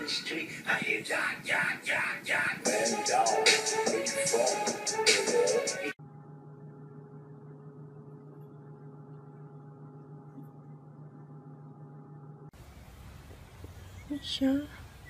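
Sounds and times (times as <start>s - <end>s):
steady low hum: 6.0s - 15.0s.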